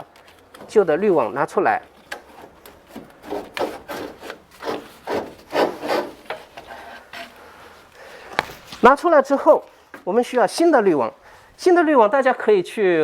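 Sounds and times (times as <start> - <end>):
air filter scraping against cabinet: 2.2 - 7.9.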